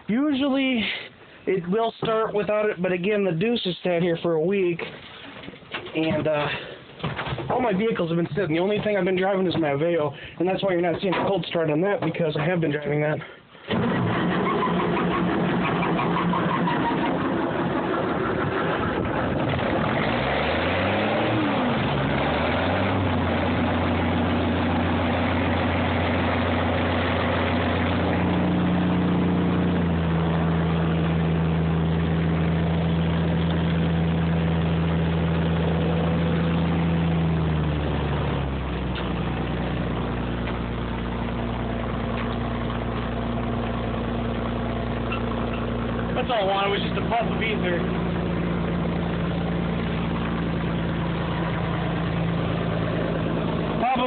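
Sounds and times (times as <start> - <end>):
diesel truck engine starting and idling: 13.6 - 54.0.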